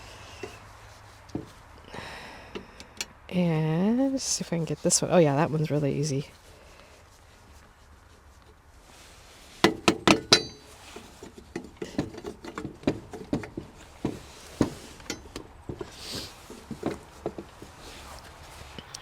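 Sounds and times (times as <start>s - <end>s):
light metal clicks and taps: 2.5s - 3.2s.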